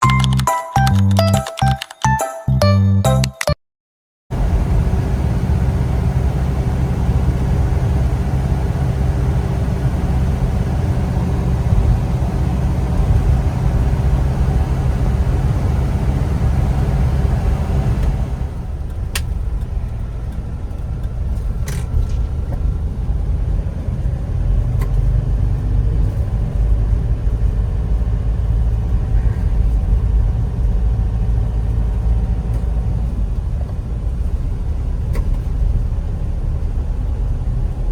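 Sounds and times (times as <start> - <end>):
short clicks: 0.0 - 2.3
vehicle engine and road rumble: 4.3 - 37.9.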